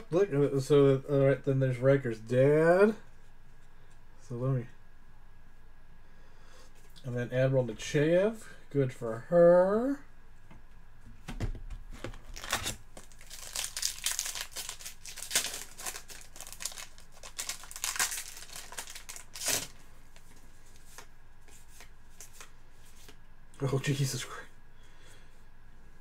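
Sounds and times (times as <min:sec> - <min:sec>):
plastic packaging crinkling and tearing: 0:11.9 - 0:19.8.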